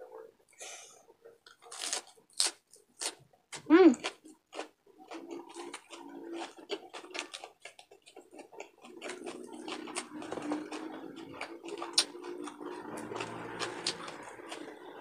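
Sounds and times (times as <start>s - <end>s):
chewing and crunching: 1.5s - 15.0s.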